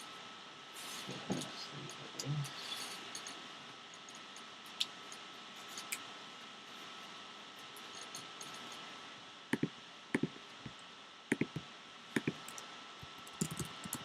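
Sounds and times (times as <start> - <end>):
faint hiss: 0.0 - 14.0
computer mouse clicking: 9.6 - 10.3, 11.3 - 11.6, 12.2 - 14.0.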